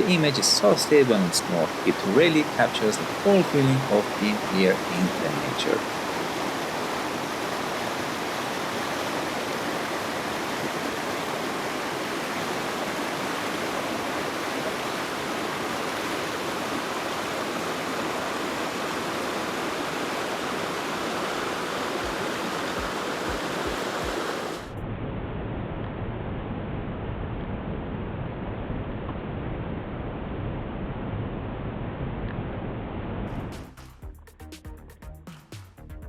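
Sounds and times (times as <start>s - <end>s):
stream over small waterfalls: 0.0s - 24.7s.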